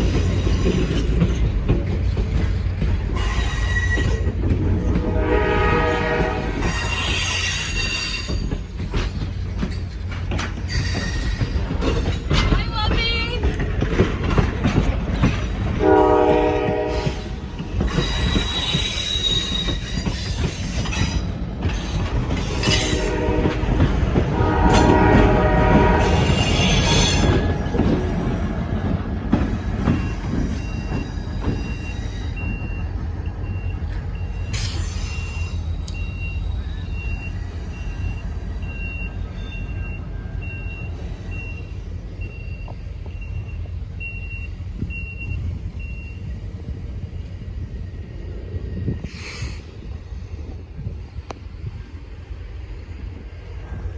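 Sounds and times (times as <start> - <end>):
train wheels rumbling: 0.0 - 53.9
wheel squeal: 3.2 - 4.4, 6.6 - 8.6, 10.6 - 12.3, 17.8 - 23.1
train horn blasts: 4.8 - 6.9, 15.8 - 17.2, 22.8 - 27.5.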